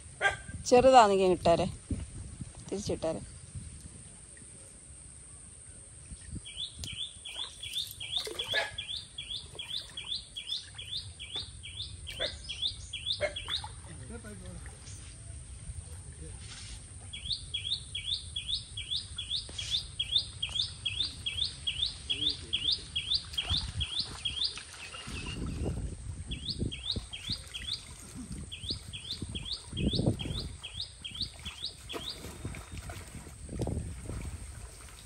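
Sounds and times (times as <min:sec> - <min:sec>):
water sloshing and splashing: 0:07.2 - 0:11.6, 0:13.3 - 0:17.1, 0:23.2 - 0:35.0.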